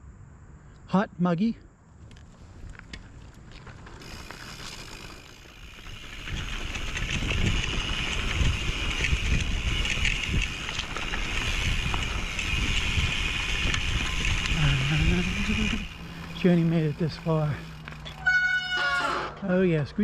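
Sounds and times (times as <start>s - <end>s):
bike tyres on dirt: 1.9s - 19.4s
wind rushing over microphone: 5.8s - 16.4s.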